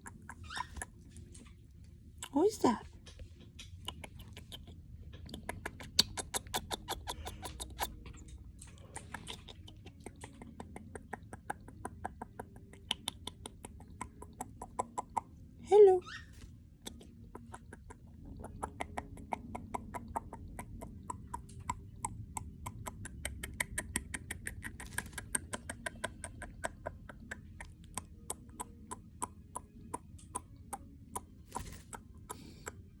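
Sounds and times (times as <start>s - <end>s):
bird beak pecking clicks: 3.6s - 15.3s, 16.8s - 32.9s.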